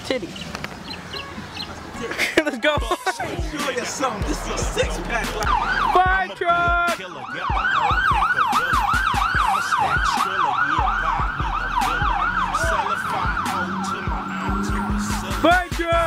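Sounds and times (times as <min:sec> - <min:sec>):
fire truck siren yelping: 0:04.3 - 0:15.8.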